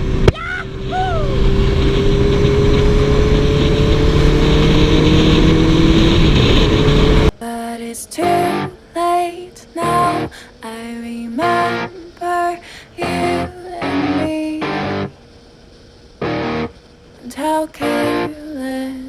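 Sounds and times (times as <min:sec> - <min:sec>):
motorcycle engine running: 0:00.0 - 0:07.3
loud rush of noise: 0:00.0 - 0:07.4, 0:12.6 - 0:17.2
music with plucked guitar: 0:08.2 - 0:08.8, 0:09.8 - 0:10.3, 0:11.4 - 0:11.9, 0:13.0 - 0:15.1, 0:16.2 - 0:16.7, 0:17.8 - 0:18.4.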